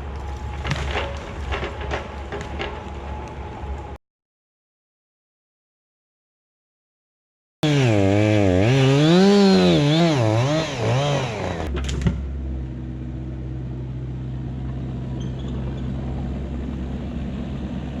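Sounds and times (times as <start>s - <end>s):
excavator diesel engine: 7.6s - 18.0s.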